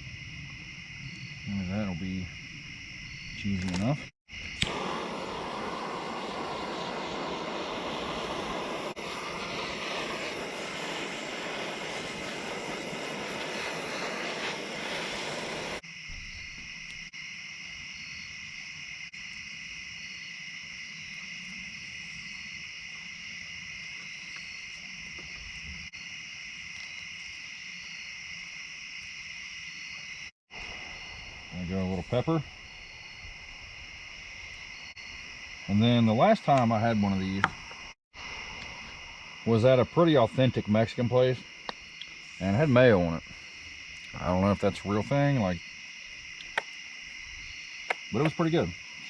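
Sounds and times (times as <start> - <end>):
insect chorus trilling: 0.0 - 49.0
broad rushing noise: 4.6 - 15.8.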